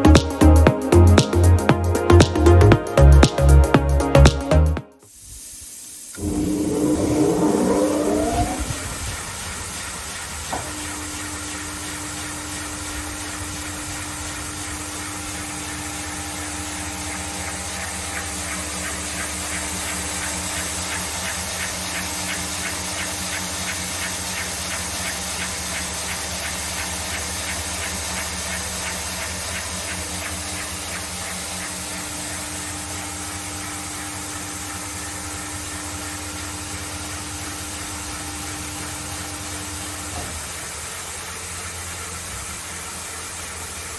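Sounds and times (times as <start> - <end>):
sanding belt hiss: 5.0 - 43.9
belt sander motor hum: 6.2 - 8.8.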